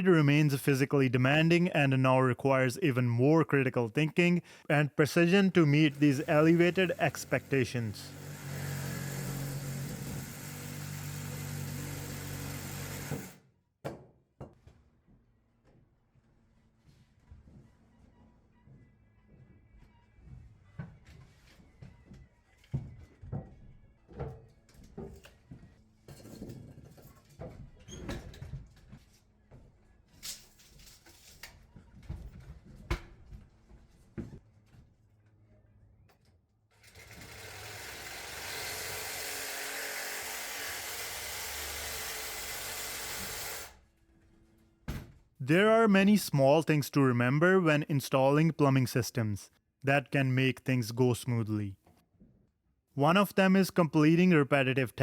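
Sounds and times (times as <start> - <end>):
power tool motor running: 8.1 - 13.4, 36.9 - 43.8.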